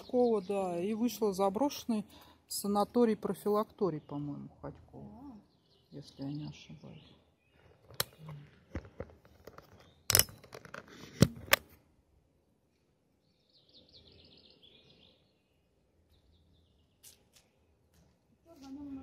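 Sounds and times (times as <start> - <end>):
small bird chirping: 3.4 - 8.7, 9.5 - 10.6, 13.2 - 17.8.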